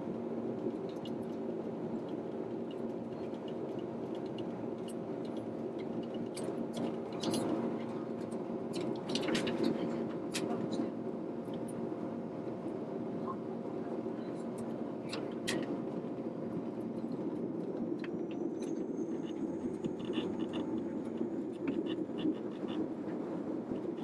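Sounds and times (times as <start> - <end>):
small clicks and rattles: 2.0 - 7.6
airliner cabin hum: 6.9 - 24.0
high-pitched whine: 17.7 - 24.0.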